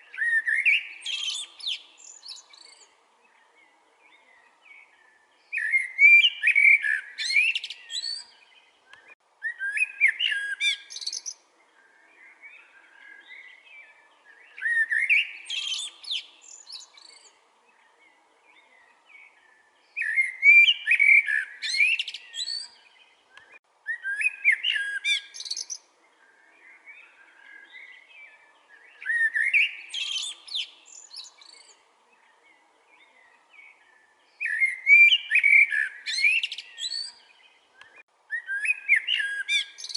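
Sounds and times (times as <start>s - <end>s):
blackbird singing: 0.0s - 39.9s.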